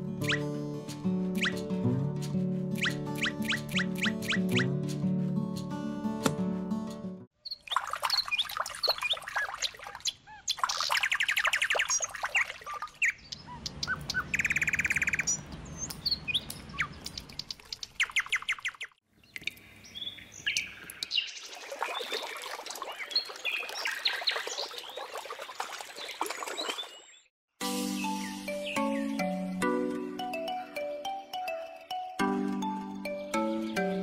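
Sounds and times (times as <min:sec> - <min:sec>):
songbirds chirping and trilling: 0:07.4 - 0:27.3, 0:33.0 - 0:34.0.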